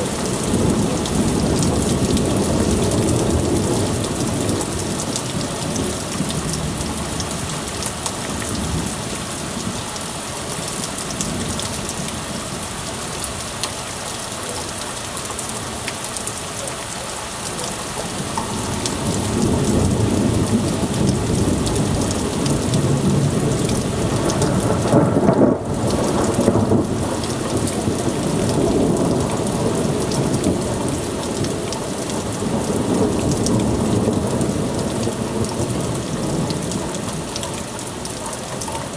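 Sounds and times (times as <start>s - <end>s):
thunder rumbling: 0.0s - 9.0s, 17.8s - 38.2s
rain downpour hissing: 0.0s - 38.9s.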